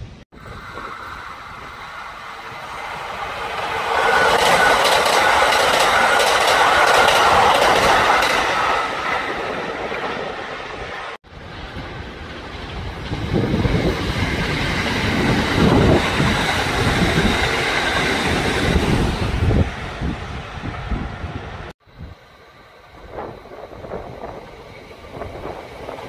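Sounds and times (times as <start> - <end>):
electric train passing: 0.0 - 26.0
train wheels clicking over rail joints: 2.8 - 10.9.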